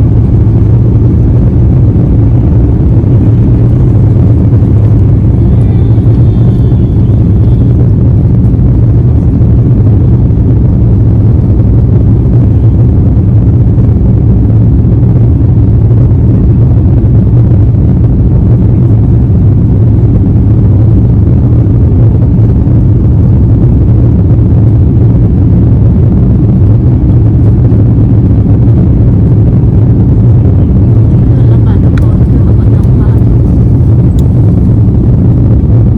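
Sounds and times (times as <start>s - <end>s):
jet engines droning: 0.0s - 35.9s
rushing air: 0.0s - 35.9s.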